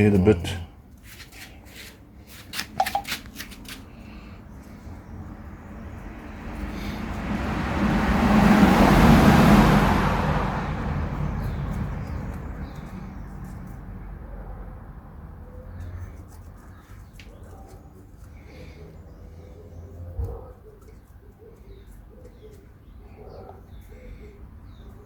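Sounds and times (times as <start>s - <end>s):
vehicle passing by: 4.0s - 16.8s, 18.3s - 20.6s.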